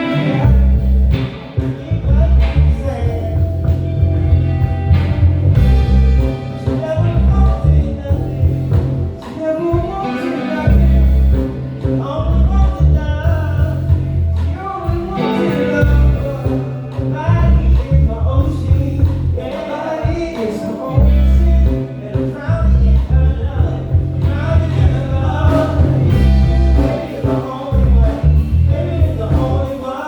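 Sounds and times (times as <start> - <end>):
heavy pulsing bass line: 0.0 - 30.0
live band playing: 0.0 - 30.0
melodic lead line: 0.0 - 30.0.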